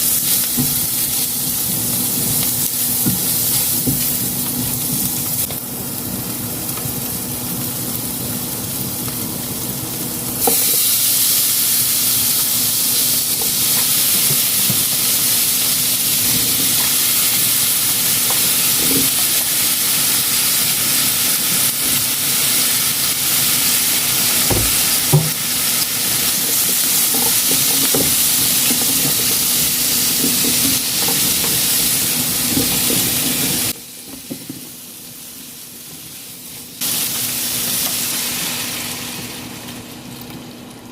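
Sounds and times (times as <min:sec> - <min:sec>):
food sizzling in a frying pan: 0:00.0 - 0:40.8.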